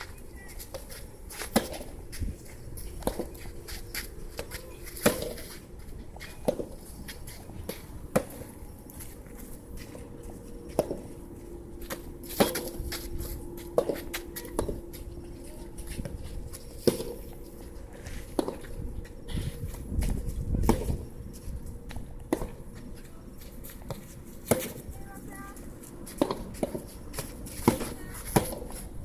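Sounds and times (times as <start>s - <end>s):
tennis ball struck by racket: 5.0s - 5.5s
wind on microphone: 18.0s - 22.2s.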